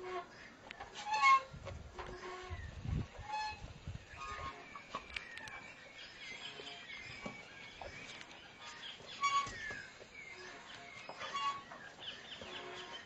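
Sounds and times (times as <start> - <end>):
birds chirping and calling: 0.0 - 13.0.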